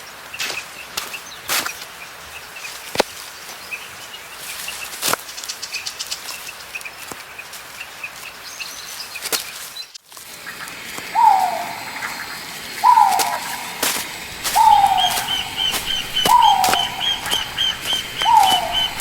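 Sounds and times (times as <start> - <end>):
small birds chirping: 0.3 - 19.0
steady background hiss: 7.4 - 19.0.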